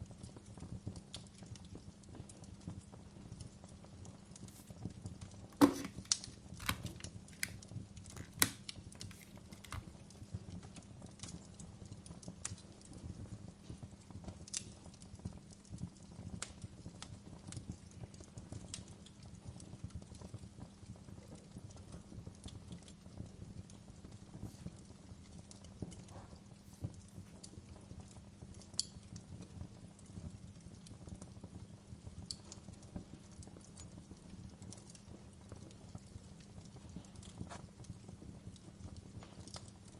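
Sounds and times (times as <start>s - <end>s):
fire popping and snapping: 5.9s - 10.2s.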